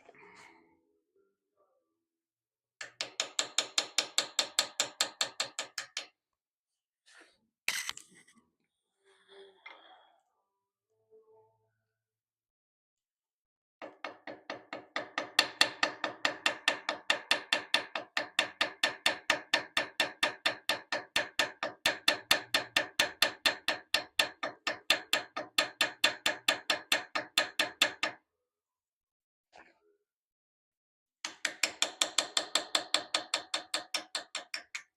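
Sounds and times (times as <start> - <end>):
small hammer tapping metal: 2.8 - 6.1, 13.8 - 28.2, 31.3 - 34.9.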